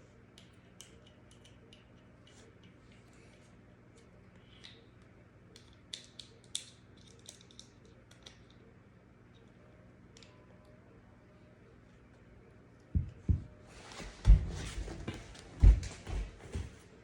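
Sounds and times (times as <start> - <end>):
low steady hum: 0.0 - 17.0
pistol parts clicking and tapping: 5.6 - 8.5.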